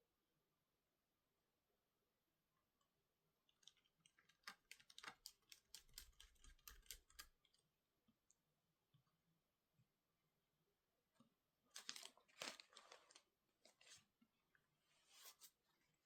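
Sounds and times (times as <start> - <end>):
laptop clicking and tapping: 4.5 - 7.3.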